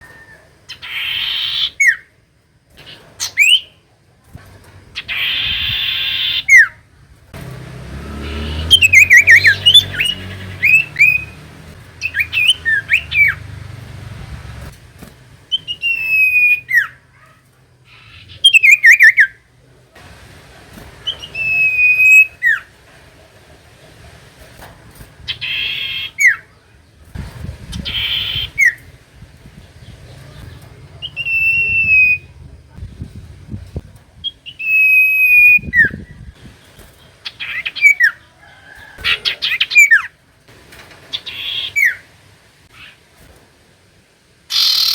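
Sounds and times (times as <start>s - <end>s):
harsh bird call bursts: 0.7s - 2.0s, 5.0s - 6.8s, 7.4s - 14.7s, 15.5s - 19.5s, 21.0s - 22.8s, 25.2s - 26.5s, 27.6s - 28.9s, 31.0s - 32.4s, 41.1s - 43.0s, 44.5s - 44.9s
bird singing whistled notes: 8.2s - 13.6s, 15.5s - 17.0s, 18.0s - 19.4s, 21.0s - 22.7s, 31.0s - 32.4s, 34.2s - 36.3s, 44.5s - 44.9s.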